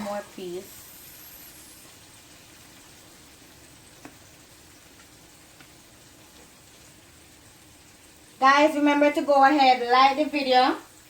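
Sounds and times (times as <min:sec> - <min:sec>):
chicken deep-frying in oil: 0:00.0 - 0:11.0
small oil pops: 0:04.0 - 0:04.2, 0:04.9 - 0:05.8.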